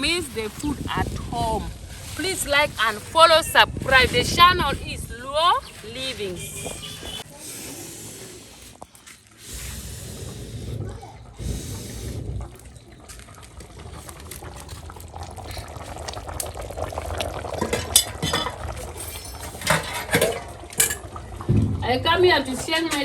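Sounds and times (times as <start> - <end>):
soup boiling and bubbling: 0.0 - 23.0
metal clinks against pot: 17.6 - 21.1.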